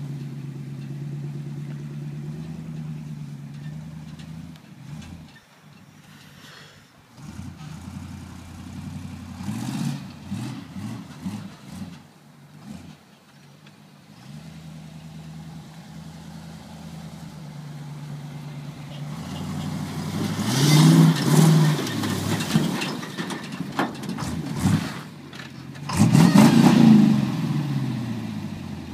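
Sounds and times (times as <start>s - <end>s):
pickup truck engine revving: 7.1s - 13.0s, 14.1s - 22.9s, 25.8s - 28.9s.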